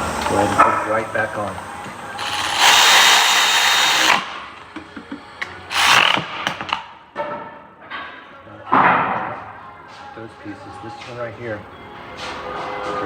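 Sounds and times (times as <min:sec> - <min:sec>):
power tool whine: 0:01.1 - 0:04.6, 0:05.7 - 0:06.8.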